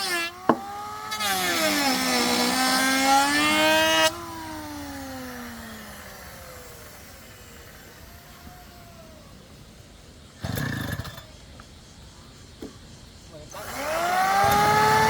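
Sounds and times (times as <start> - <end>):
power tool cutting wood: 0.0 - 9.4, 13.6 - 15.0
motor winding down: 0.0 - 9.6, 13.6 - 15.0.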